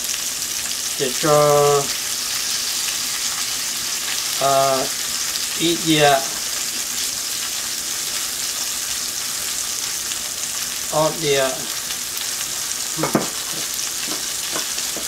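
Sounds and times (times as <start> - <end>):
food frying sizzle: 0.0 - 15.0
person speaking: 4.4 - 5.0, 5.6 - 6.4, 10.9 - 11.7, 13.0 - 14.2.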